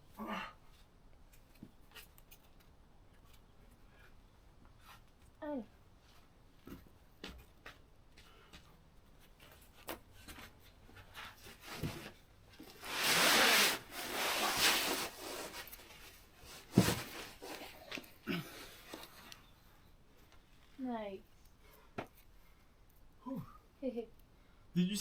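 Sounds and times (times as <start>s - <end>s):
long scrape on rock: 12.8s - 15.6s.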